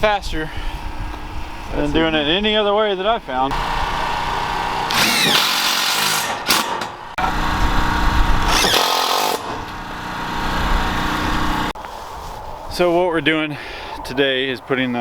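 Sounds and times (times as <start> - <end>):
power drill running: 3.5 - 11.8.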